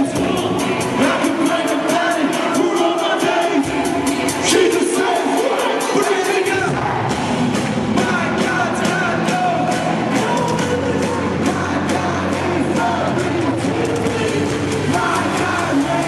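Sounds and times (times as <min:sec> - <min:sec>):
rock band playing: 0:00.0 - 0:16.0
person singing: 0:08.0 - 0:16.0.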